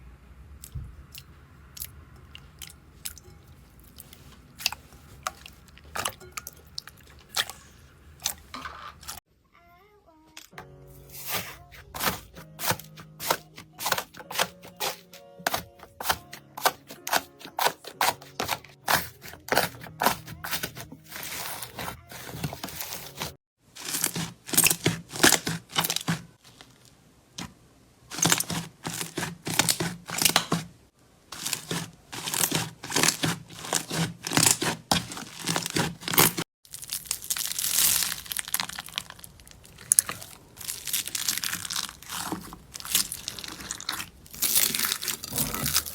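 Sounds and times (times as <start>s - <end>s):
soft background music: 9.5s - 23.4s
slime crackling and popping: 23.8s - 26.1s, 31.4s - 45.9s.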